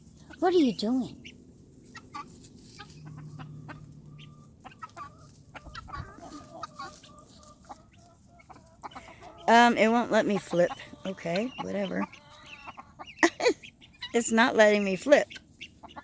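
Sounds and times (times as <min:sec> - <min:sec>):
chickens clucking: 0:00.1 - 0:16.0.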